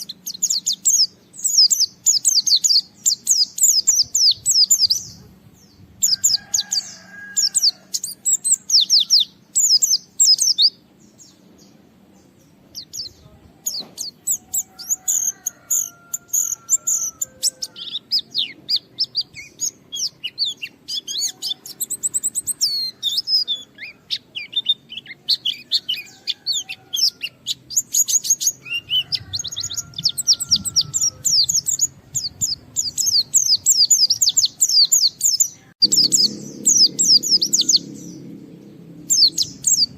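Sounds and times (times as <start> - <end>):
bird twittering: 12.7 - 38.4.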